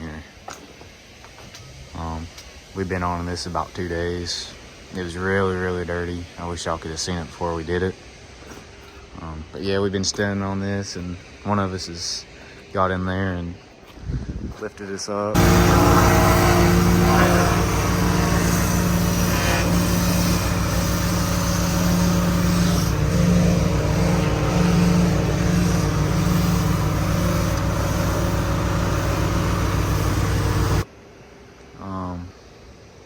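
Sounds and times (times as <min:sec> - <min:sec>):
hiss: 0:00.0 - 0:09.4, 0:15.4 - 0:30.9
engine running steadily: 0:15.4 - 0:30.8.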